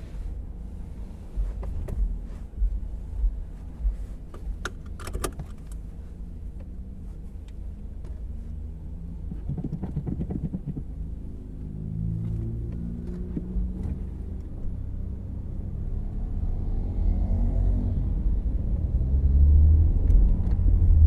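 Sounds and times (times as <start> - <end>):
road and engine rumble in car cabin: 0.0 - 21.0
light clicks and rattles: 4.3 - 5.9.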